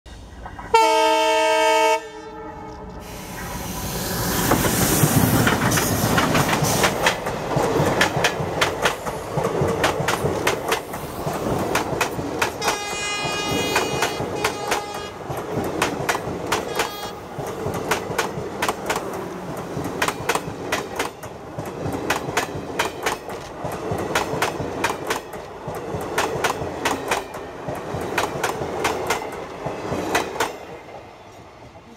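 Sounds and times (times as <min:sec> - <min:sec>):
train horn blast: 0:00.7 - 0:03.0, 0:12.6 - 0:15.3, 0:16.6 - 0:17.3
train wheels clicking over joints: 0:04.1 - 0:31.0.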